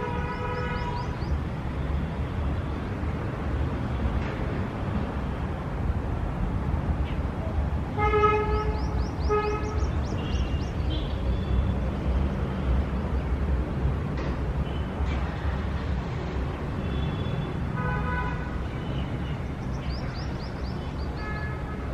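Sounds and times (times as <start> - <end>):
city traffic rumble: 0.0 - 21.9
birds chirping: 8.5 - 11.5, 18.8 - 21.6.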